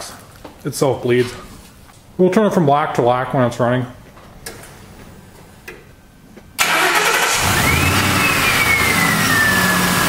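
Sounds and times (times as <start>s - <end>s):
car engine starting and running: 6.6s - 10.0s.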